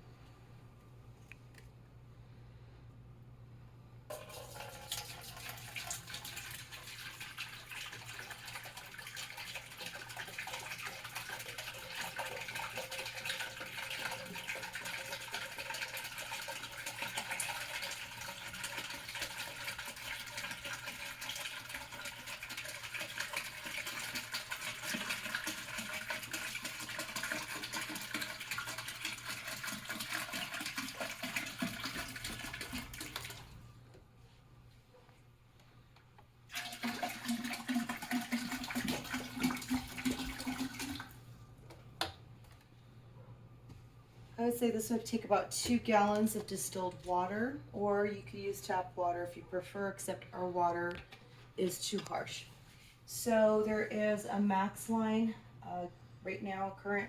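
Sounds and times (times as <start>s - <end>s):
water pouring into tank: 4.1s - 33.6s, 36.5s - 41.2s.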